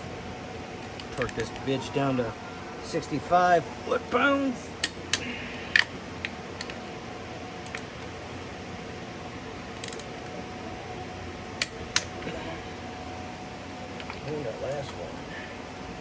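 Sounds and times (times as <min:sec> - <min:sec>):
shop hum: 0:00.0 - 0:16.0
torque wrench clicks: 0:07.6 - 0:07.9, 0:09.8 - 0:10.3.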